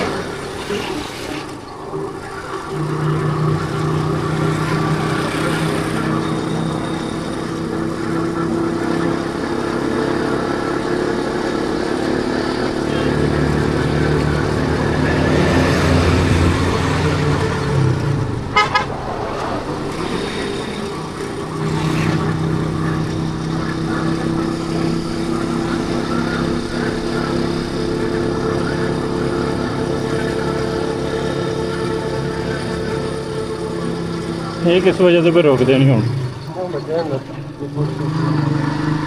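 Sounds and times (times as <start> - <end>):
motorcycle engine running: 1.9 - 39.0
motorcycle horn toots: 18.5 - 19.0.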